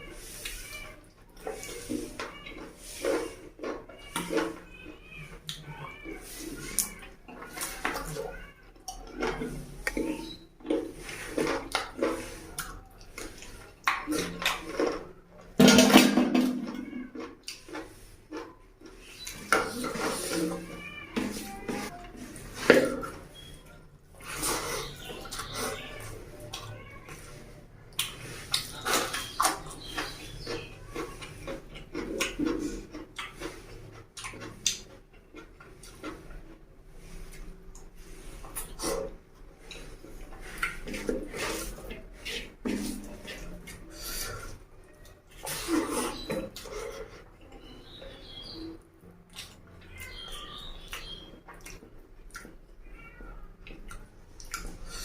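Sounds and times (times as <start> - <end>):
person chewing and lip-smacking: 17.2 - 20.0, 27.9 - 36.4, 37.0 - 48.0, 49.3 - 52.8, 53.6 - 55.0.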